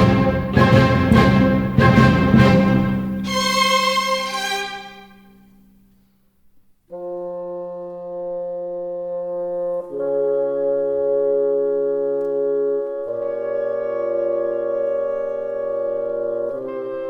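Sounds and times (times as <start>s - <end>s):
brass sustained chord: 0.0s - 5.2s
orchestral chord: 0.0s - 5.2s.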